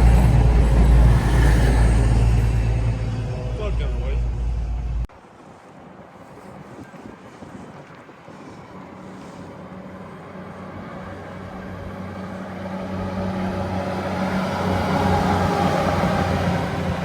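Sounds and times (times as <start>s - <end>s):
diesel train engine drone: 0.0s - 5.1s, 9.5s - 17.0s.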